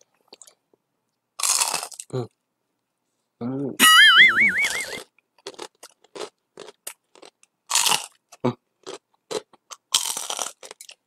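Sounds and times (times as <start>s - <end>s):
crunching and chewing fried food: 0.0s - 2.4s, 5.0s - 11.0s.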